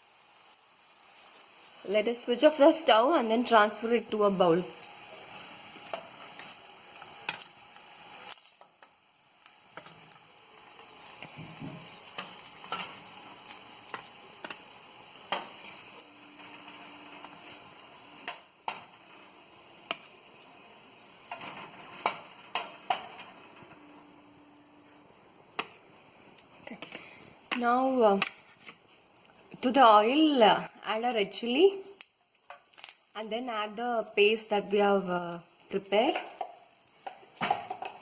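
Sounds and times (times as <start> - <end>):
hot oil sizzling: 0.0 - 38.0
metal spatula scraping frying pan: 21.2 - 23.8.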